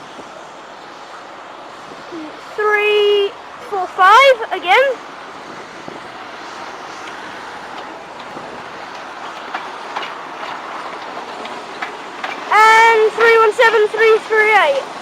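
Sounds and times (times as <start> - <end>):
train running on rails: 0.0 - 15.0.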